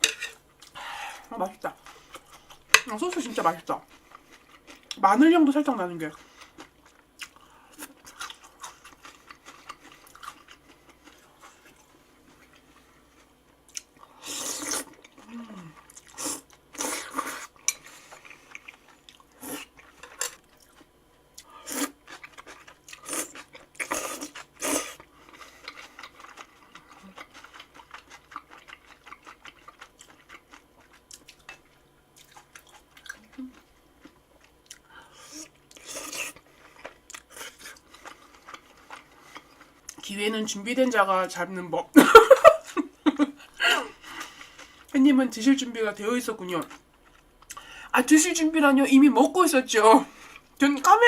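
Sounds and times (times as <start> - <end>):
chewing: 0.2 - 5.0, 6.1 - 40.1.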